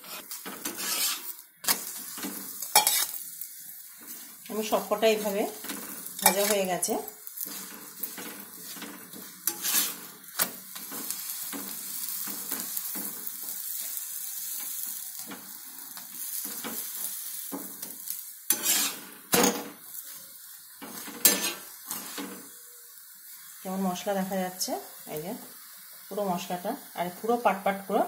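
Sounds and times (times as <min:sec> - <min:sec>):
spatula scraping pan: 0:00.0 - 0:03.2, 0:03.8 - 0:15.6, 0:18.5 - 0:20.1, 0:20.8 - 0:22.5
flatbread sizzling in oil: 0:00.0 - 0:28.0.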